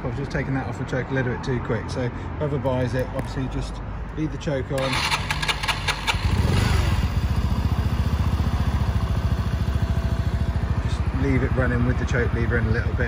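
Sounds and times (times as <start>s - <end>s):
motorcycle engine idling: 4.8s - 13.0s.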